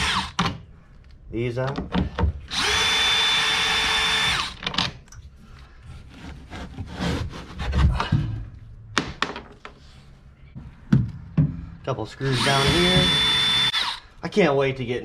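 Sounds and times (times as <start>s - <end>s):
power drill whining: 0.0s - 0.4s, 2.5s - 4.6s, 12.3s - 14.1s.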